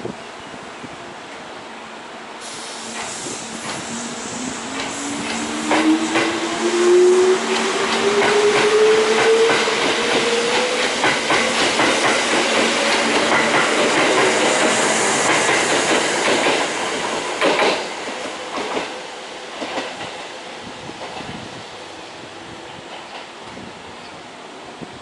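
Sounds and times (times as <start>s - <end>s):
train wheels clacking on rails: 2.5s - 21.5s, 22.6s - 23.6s.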